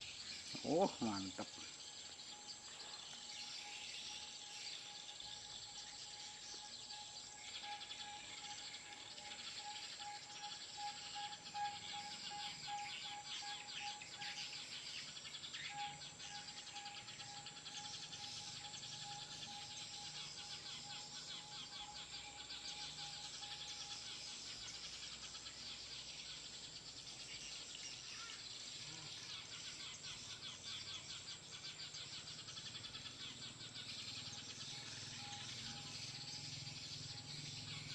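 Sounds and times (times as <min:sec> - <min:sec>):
sparrows chirping: 0:00.0 - 0:37.9
thin steady tone: 0:00.1 - 0:29.1.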